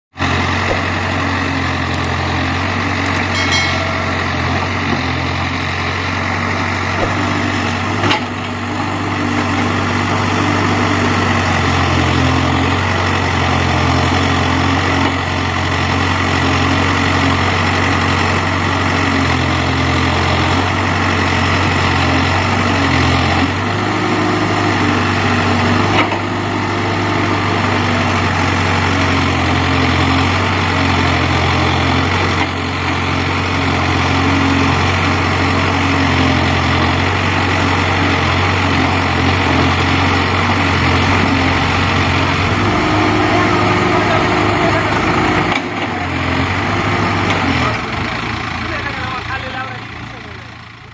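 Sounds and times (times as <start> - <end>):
diesel engine running: 0.1 - 50.9
sharp knock: 0.7 - 1.0, 7.0 - 7.4.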